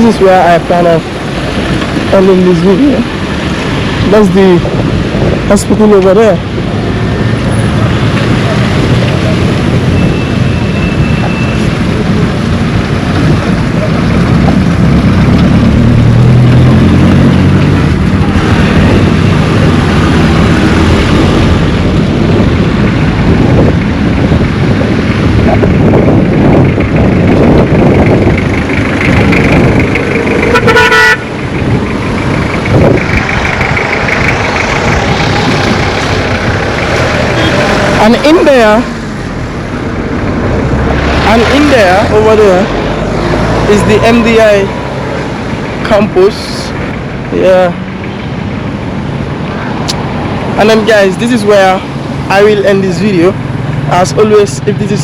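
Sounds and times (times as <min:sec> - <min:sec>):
vehicle engines passing close: 0:00.0 - 0:55.0
car horn toot: 0:30.5 - 0:31.3, 0:37.3 - 0:37.8.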